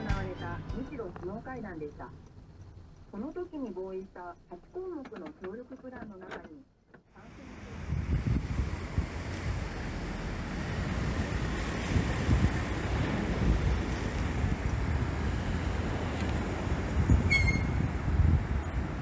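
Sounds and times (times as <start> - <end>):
wind gusting on microphone: 7.4 - 19.0.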